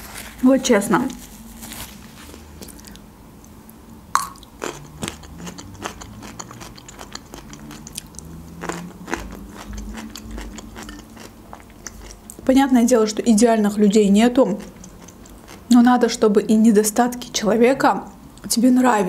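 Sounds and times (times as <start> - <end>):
chewing crunchy pickle: 4.2 - 12.5, 14.3 - 15.8.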